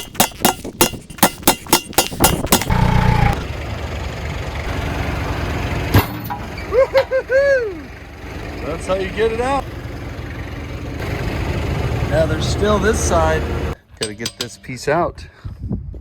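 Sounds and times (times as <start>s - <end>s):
sharp metal strikes: 0.0s - 2.8s, 14.0s - 15.2s.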